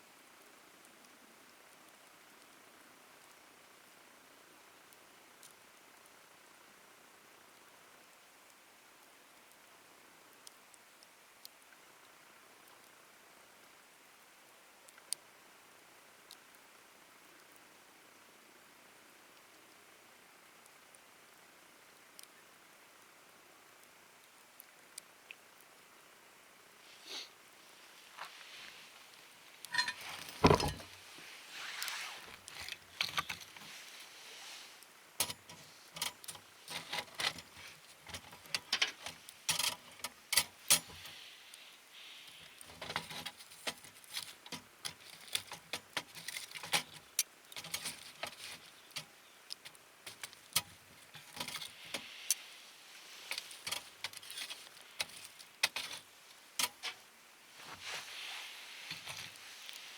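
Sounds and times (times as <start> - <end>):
wood fire crackling: 27.0 - 59.9.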